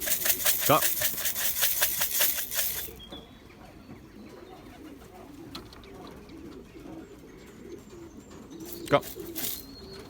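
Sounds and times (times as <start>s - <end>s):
rapid rattle: 0.0s - 3.0s, 8.7s - 9.8s
pigeons cooing: 0.0s - 10.0s.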